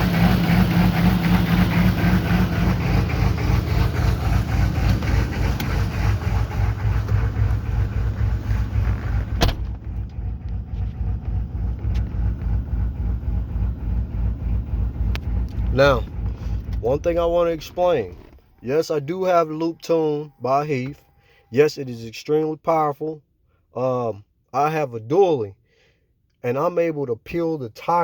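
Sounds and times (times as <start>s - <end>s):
engine knock: 0.0s - 8.8s
diesel engine idling: 0.0s - 21.5s.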